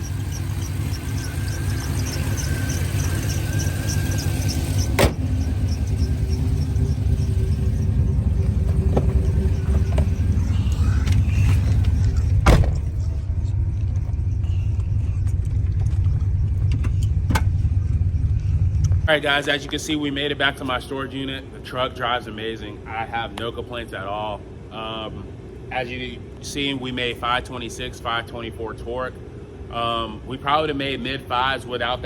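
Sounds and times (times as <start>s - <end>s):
sharp engine knocks: 0.0s - 13.1s
faint high whine: 0.0s - 23.0s
truck engine rumbling: 0.0s - 32.0s.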